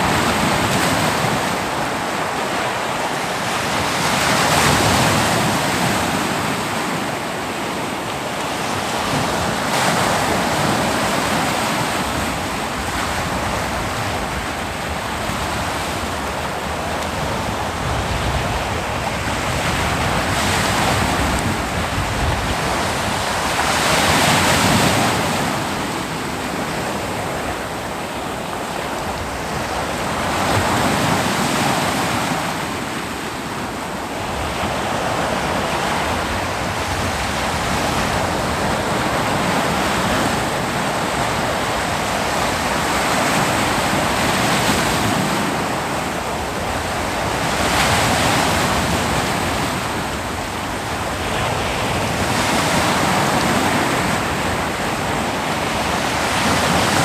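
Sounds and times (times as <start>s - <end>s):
ocean waves breaking: 0.0s - 57.0s.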